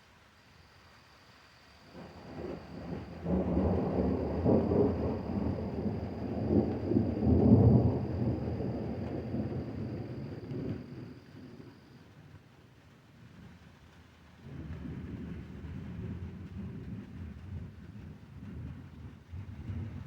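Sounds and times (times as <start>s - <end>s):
deep rolling thunder: 1.9s - 12.0s, 14.4s - 20.0s.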